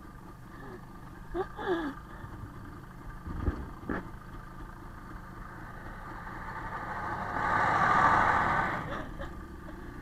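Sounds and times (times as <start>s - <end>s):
motorcycle engine idling: 0.0s - 6.8s, 8.9s - 10.0s.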